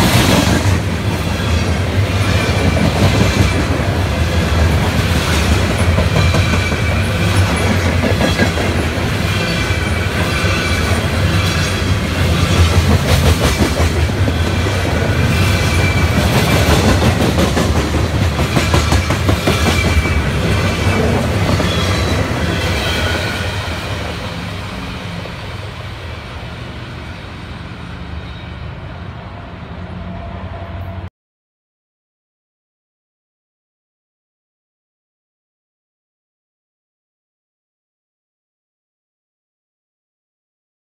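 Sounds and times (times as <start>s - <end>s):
train wheels rumbling on rails: 0.0s - 31.1s.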